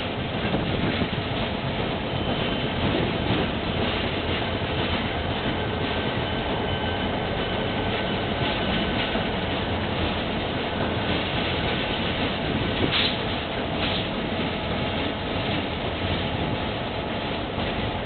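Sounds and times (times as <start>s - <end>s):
train wheels rumbling: 0.0s - 18.0s
faint high squeal: 6.0s - 8.6s.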